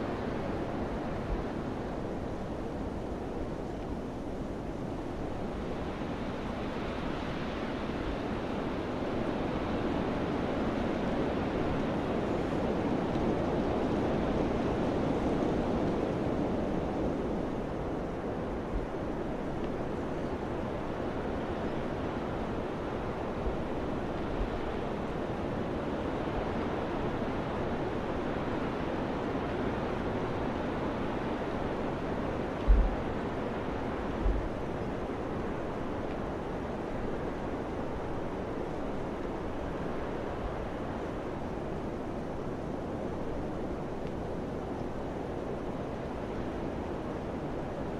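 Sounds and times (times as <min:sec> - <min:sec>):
wind blowing: 0:31.8 - 0:36.6.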